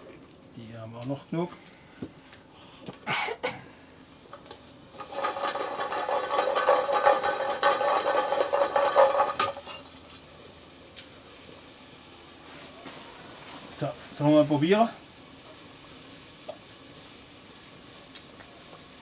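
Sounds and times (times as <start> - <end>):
chestnuts rattling in metal pot: 4.9 - 9.8.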